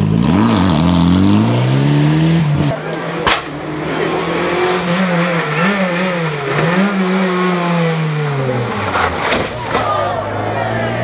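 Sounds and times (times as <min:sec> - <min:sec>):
rally car engine revving: 0:00.0 - 0:11.0
sharp crack: 0:03.2 - 0:03.6.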